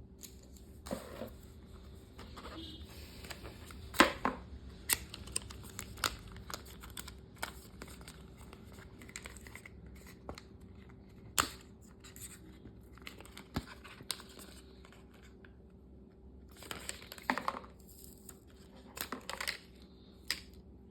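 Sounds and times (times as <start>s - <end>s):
paper and cardboard rustling: 0.3s - 4.2s.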